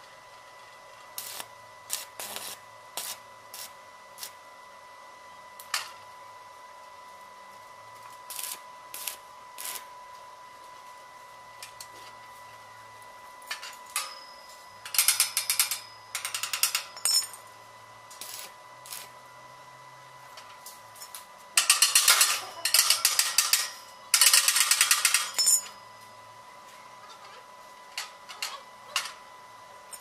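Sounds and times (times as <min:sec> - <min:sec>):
welding crackling: 0:01.2 - 0:04.4, 0:08.0 - 0:09.9, 0:18.1 - 0:19.2.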